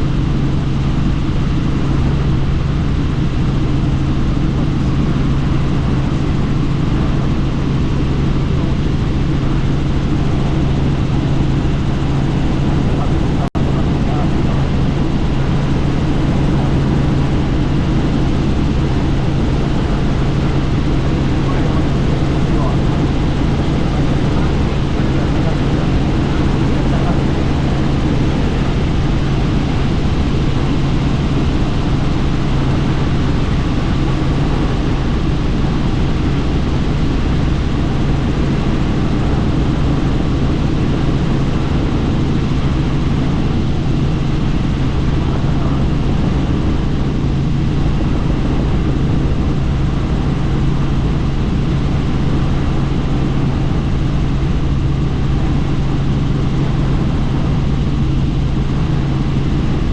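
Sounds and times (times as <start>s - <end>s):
helicopter rotor and engine hum: 0.0s - 59.9s
rushing noise: 12.4s - 17.8s.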